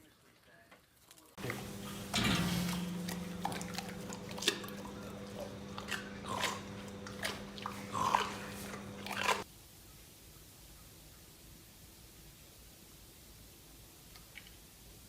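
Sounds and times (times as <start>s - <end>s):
crunching and chewing: 0.9s - 9.4s
low hum: 1.4s - 9.4s.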